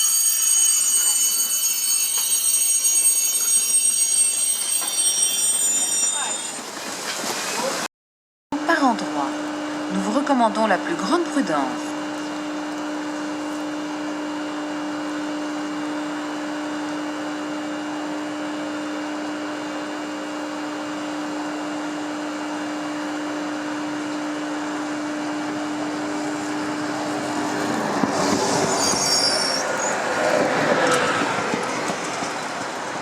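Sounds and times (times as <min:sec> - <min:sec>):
high-pitched wheel squeals: 0:00.0 - 0:06.7, 0:28.5 - 0:30.1
train electric hum: 0:00.0 - 0:07.3, 0:08.6 - 0:33.0
train rumbling on rails: 0:23.7 - 0:33.0.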